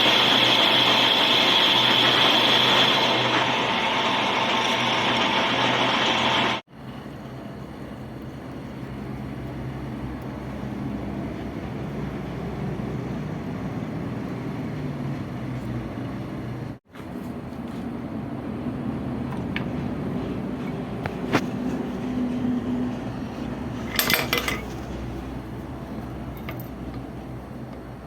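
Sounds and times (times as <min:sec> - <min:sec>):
lathe cutting metal with whine: 0:00.0 - 0:06.6
lathe running hum: 0:00.0 - 0:06.6.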